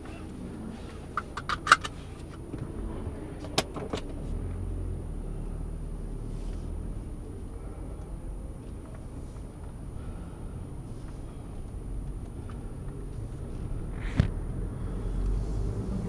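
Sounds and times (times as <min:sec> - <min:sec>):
car engine rumbling: 0:00.0 - 0:16.0
sharp clicks and rattles: 0:01.1 - 0:02.7.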